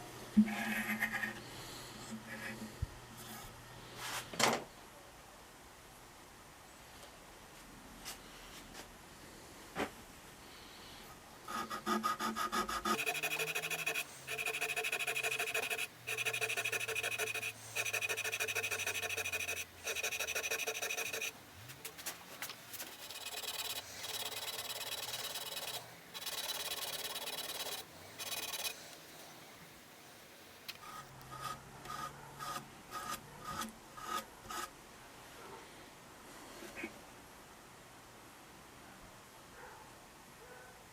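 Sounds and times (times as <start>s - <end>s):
rapid rubbing strokes: 12.8s - 29.5s.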